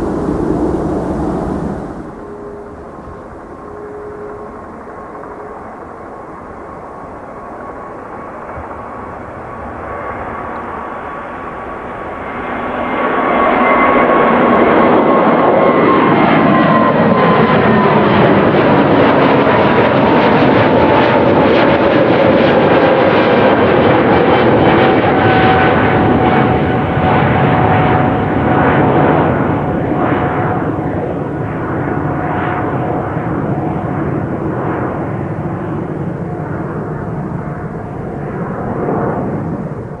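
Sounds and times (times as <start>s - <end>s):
whining engine tone: 0.0s - 8.3s
airliner engines booming overhead: 0.0s - 40.0s.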